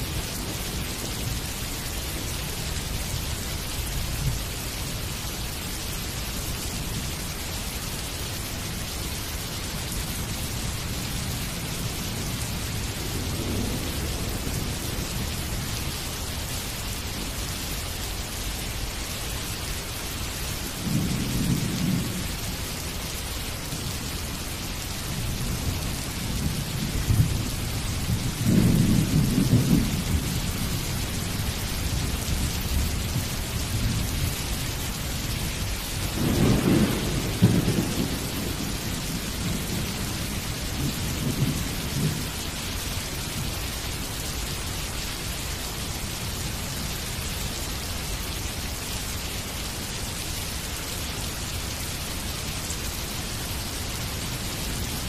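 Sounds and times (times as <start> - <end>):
steady rain: 0.0 - 55.0
thunder rumbling: 12.3 - 15.7, 20.8 - 22.4, 25.2 - 34.6, 35.2 - 42.6.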